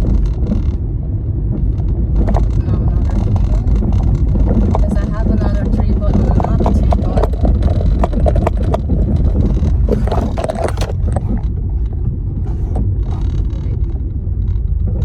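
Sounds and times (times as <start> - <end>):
car road and engine rumble: 0.0 - 15.0
knocks and rattles: 1.5 - 12.2.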